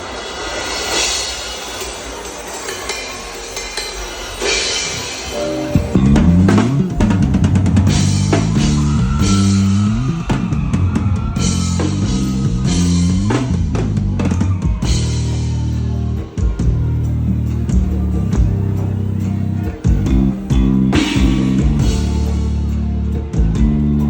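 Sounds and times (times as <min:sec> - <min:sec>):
drum kit kick and snare: 0:04.8 - 0:18.8, 0:19.9 - 0:22.5
deep bass line: 0:05.4 - 0:24.0.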